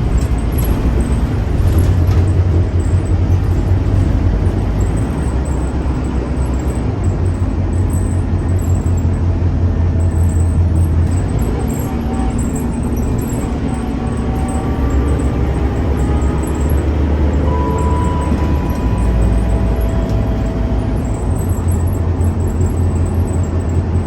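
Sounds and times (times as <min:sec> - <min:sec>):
bus engine droning: 0:00.0 - 0:24.0
road and mechanical noise: 0:00.0 - 0:24.0.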